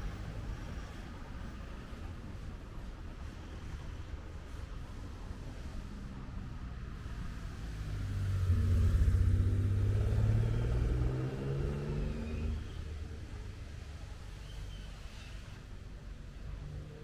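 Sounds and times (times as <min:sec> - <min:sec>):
vehicle engine passing by: 0:07.4 - 0:13.6.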